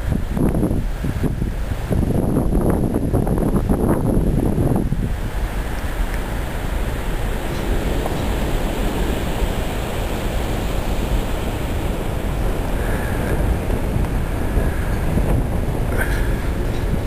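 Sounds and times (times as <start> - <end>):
low rumbling noise: 0.0 - 17.0.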